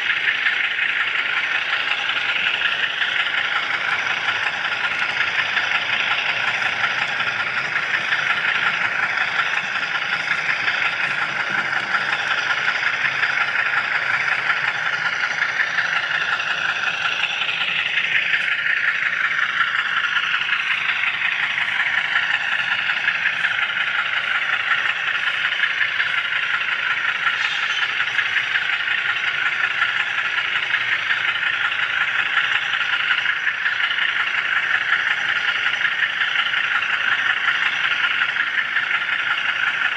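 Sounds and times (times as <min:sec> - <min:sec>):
falling whine: 0:00.0 - 0:33.7
model train car whirring rattle: 0:00.0 - 0:39.9.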